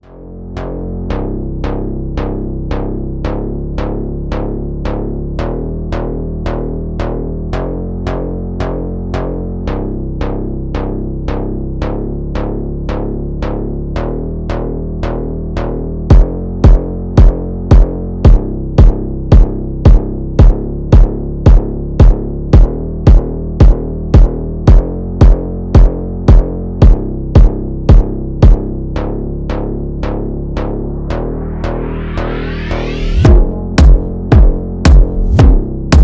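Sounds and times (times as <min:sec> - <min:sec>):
synthesizer chords and bass: 0:00.0 - 0:36.0
drum machine ticks: 0:16.1 - 0:28.6, 0:33.2 - 0:36.0
loud low drum hit: 0:33.2 - 0:36.0.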